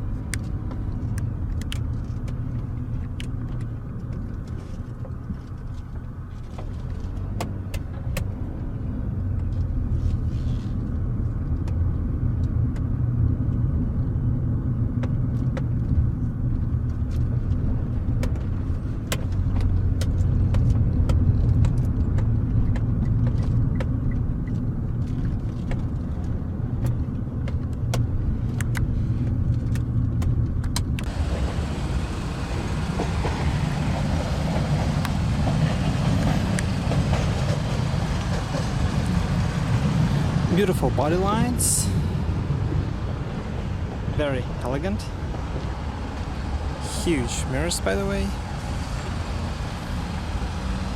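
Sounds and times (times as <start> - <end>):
car engine low rumble: 0.0 - 50.9
loud rushing noise: 31.1 - 50.9.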